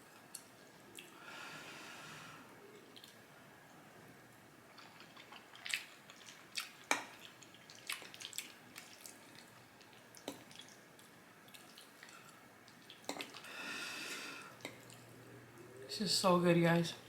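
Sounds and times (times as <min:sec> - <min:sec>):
chewing: 0:04.7 - 0:13.4, 0:14.5 - 0:15.2.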